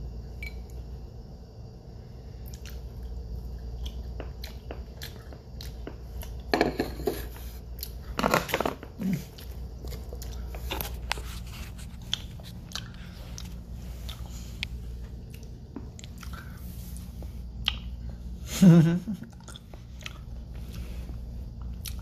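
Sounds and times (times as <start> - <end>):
person chewing candy: 2.4 - 6.5, 7.6 - 16.6, 17.4 - 18.2, 19.2 - 22.0.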